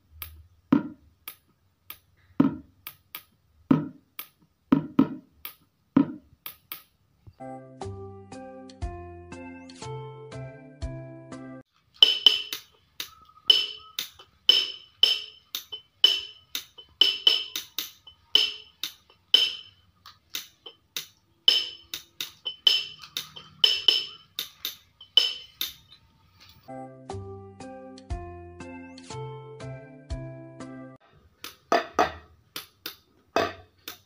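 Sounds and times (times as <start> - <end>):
sharp knocks: 0.7 - 6.8, 31.4 - 34.0.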